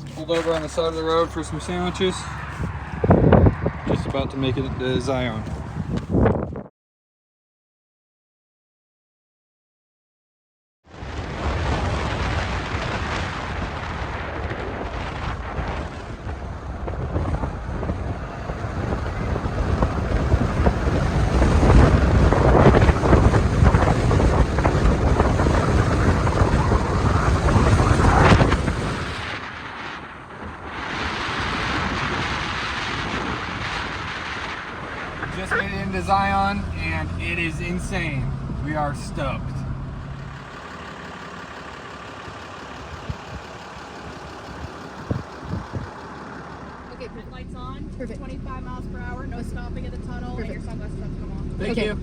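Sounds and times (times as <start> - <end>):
road noise: 0.0 - 6.6, 10.9 - 52.0
wind buffeting microphone: 0.0 - 6.7, 11.0 - 35.6, 44.4 - 46.1.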